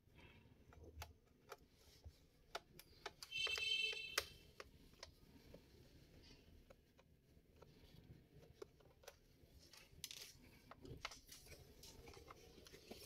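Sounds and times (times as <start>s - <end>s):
screwdriver ticks and clicks: 2.5s - 4.3s.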